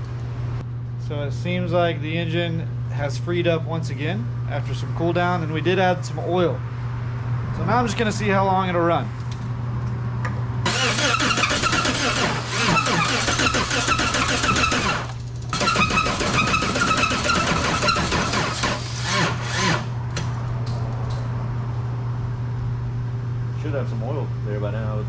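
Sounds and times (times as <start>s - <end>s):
engine cranking on starter: 10.7s - 19.9s.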